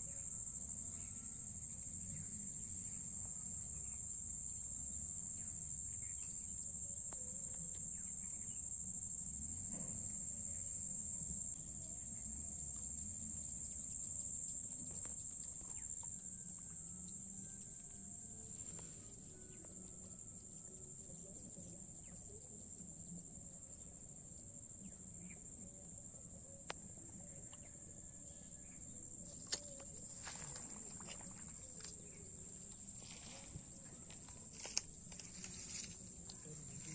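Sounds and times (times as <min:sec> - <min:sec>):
insects chorus: 0:00.0 - 0:36.9.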